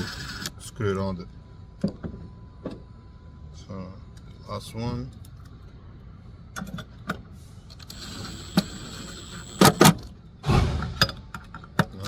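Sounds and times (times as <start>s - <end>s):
mechanical whir: 7.8s - 11.4s.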